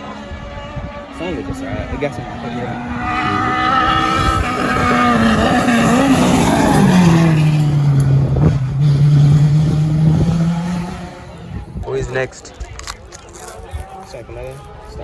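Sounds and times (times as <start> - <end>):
rally car engine passing: 0.0 - 11.8.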